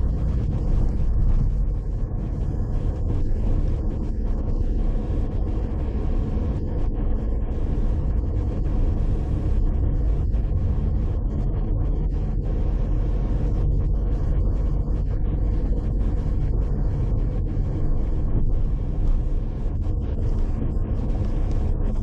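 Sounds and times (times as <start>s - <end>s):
car driving rumble: 0.0s - 22.0s.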